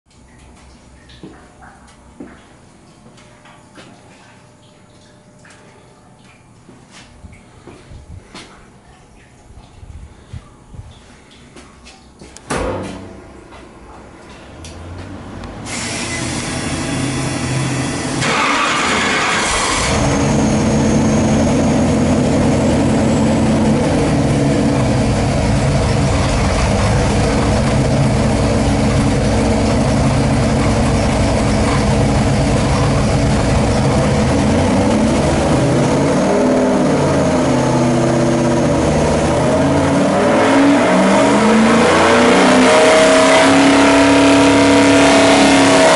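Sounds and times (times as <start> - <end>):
car engine starting and idling: 14.6 - 45.9
engine revving: 14.8 - 45.9.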